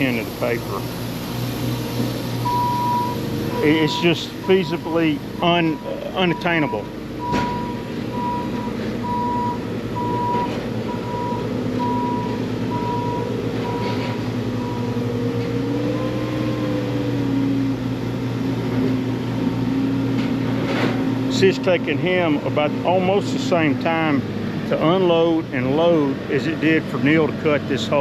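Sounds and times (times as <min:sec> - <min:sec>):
diesel engine running: 0:00.0 - 0:28.0
backup alarm beeping: 0:02.4 - 0:15.0.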